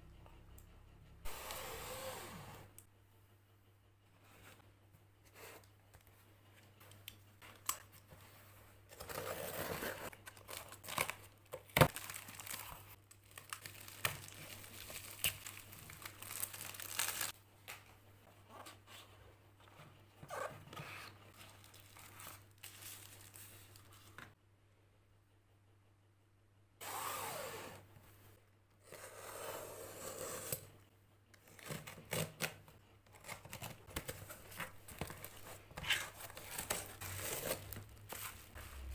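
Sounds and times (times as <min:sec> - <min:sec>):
packaging torn and crinkled: 0:10.3 - 0:17.4.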